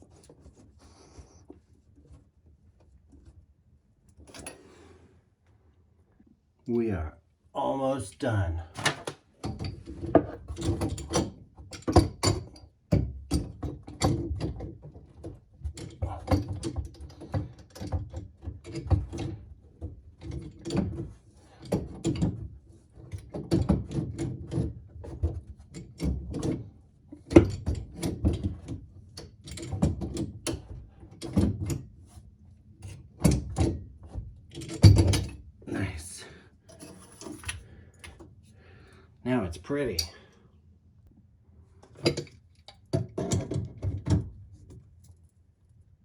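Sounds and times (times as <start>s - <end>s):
pipe parts clicking and knocking: 8.8s - 31.9s, 32.8s - 35.6s, 36.6s - 38.4s, 39.8s - 40.4s, 41.8s - 44.8s.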